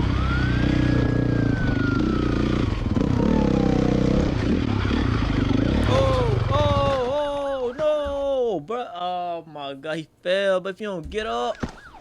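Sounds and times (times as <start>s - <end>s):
motorcycle engine running: 0.0s - 7.2s
police siren wail: 0.0s - 8.3s, 11.4s - 12.0s.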